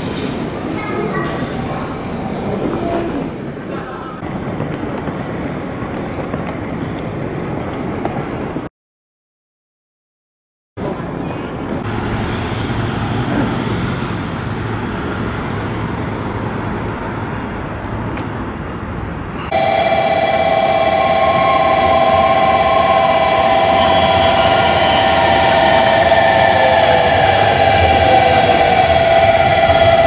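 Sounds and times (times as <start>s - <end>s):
train rumbling: 4.2s - 8.7s, 10.8s - 30.0s
steady multi-tone whine: 19.4s - 30.0s.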